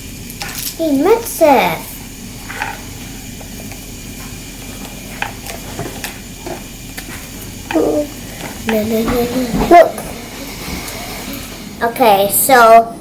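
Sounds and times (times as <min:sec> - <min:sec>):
steady hiss: 0:00.0 - 0:13.0
stirring taps and scrapes: 0:00.3 - 0:00.8, 0:02.4 - 0:11.6.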